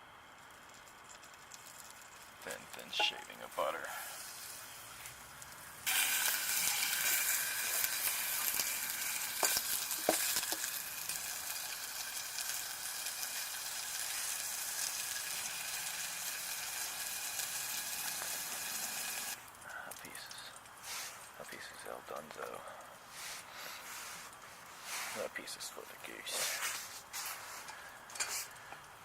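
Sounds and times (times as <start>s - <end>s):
bacon sizzling in a pan: 0.3s - 3.3s, 3.9s - 19.5s.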